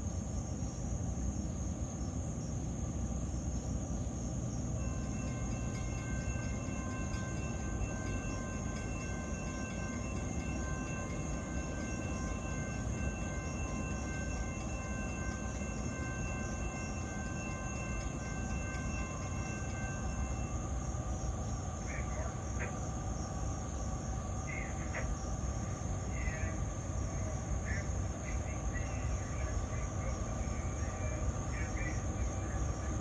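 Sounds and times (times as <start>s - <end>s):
insects droning: 0.0s - 33.0s
train rumble: 0.0s - 33.0s
chord of high tones: 4.8s - 21.1s.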